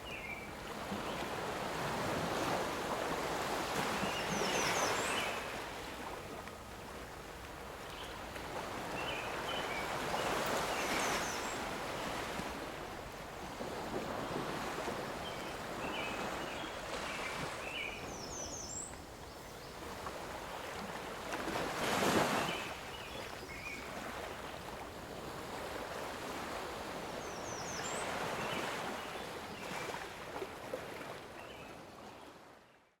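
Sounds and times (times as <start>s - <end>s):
wind: 0.0s - 33.0s
lake waves washing against shore: 0.6s - 19.2s, 19.8s - 27.2s.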